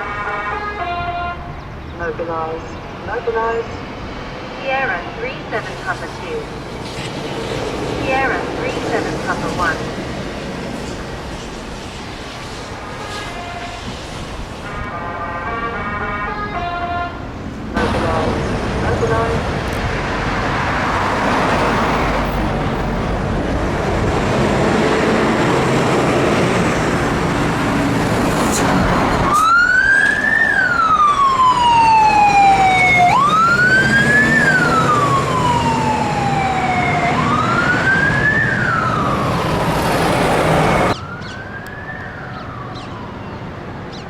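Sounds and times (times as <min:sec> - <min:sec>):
fire engine siren wailing: 0:00.0 - 0:03.7, 0:14.7 - 0:43.9.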